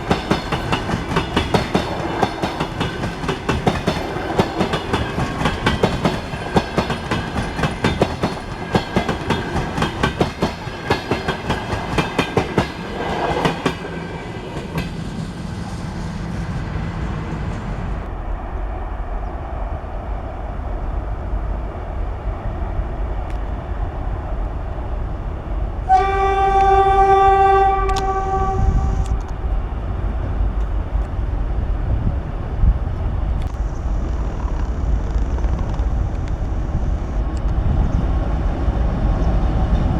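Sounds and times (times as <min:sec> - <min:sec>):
train wheels clicking over rail joints: 0:00.0 - 0:15.3
low train rumble: 0:00.0 - 0:39.9
locomotive horn: 0:25.9 - 0:29.2.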